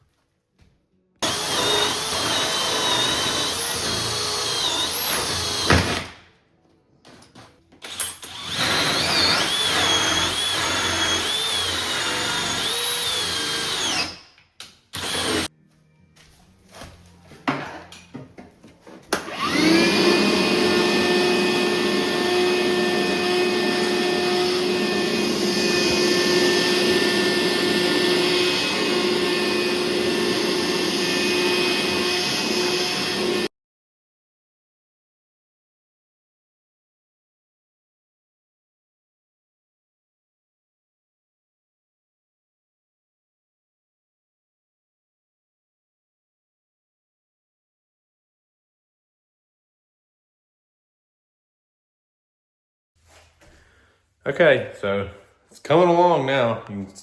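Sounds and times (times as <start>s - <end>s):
handheld power tool running: 1.2s - 6.1s, 7.8s - 14.3s, 14.9s - 15.5s, 19.2s - 33.5s
motor whining: 19.2s - 33.5s.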